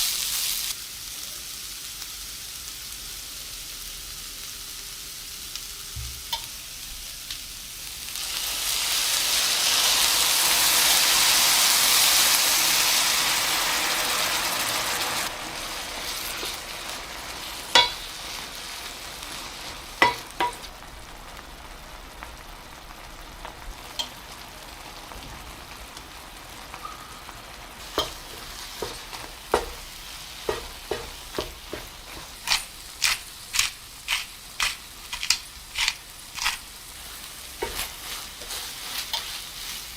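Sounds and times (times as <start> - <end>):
food sizzling in a frying pan: 0.0 - 39.9
utensil clicking against pan: 17.7 - 18.0, 20.0 - 20.7, 27.9 - 29.9, 30.5 - 36.6.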